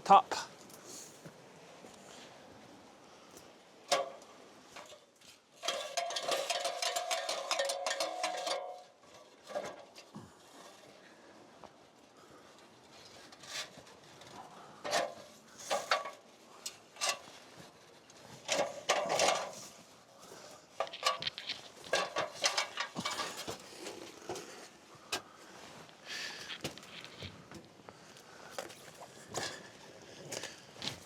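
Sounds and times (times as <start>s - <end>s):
rigging hardware clinking and rattling: 5.6s - 10.1s, 18.4s - 19.8s, 20.7s - 24.5s.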